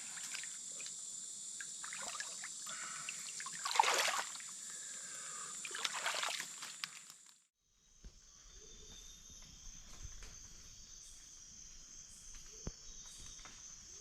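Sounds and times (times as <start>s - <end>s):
water trickling and splashing: 0.0s - 1.0s, 1.6s - 4.9s, 5.5s - 7.2s.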